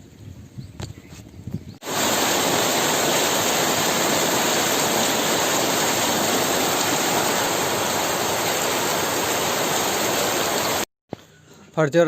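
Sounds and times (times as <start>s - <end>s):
water hissing: 1.8s - 10.9s.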